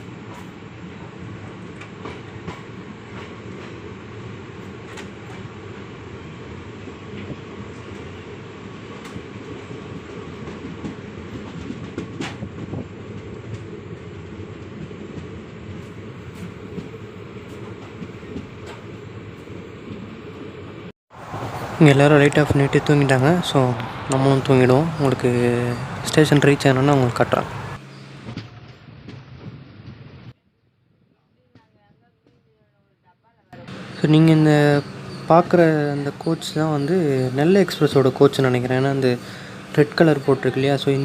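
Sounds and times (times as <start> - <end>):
train coach rumbling: 0.0 - 30.4, 33.6 - 41.0
wheels clicking on track: 21.2 - 27.8.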